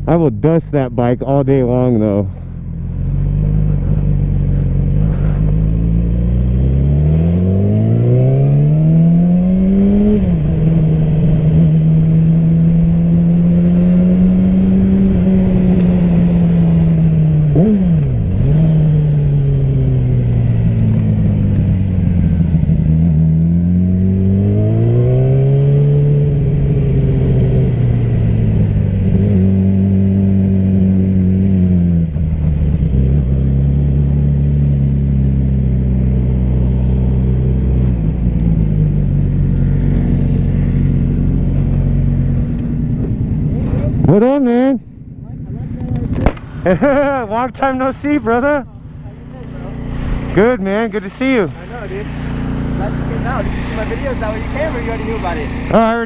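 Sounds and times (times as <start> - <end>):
sport-bike engine revving: 0.0 - 56.0
riding noise: 45.6 - 56.0.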